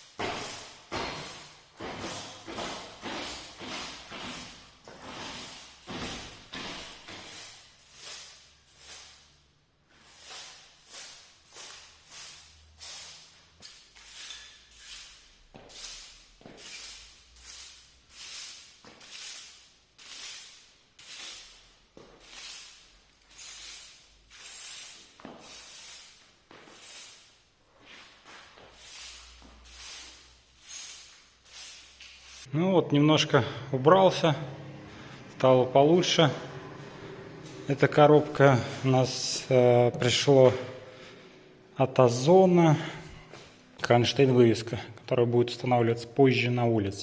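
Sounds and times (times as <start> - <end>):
broom sweeping a floor: 0.0 - 32.6.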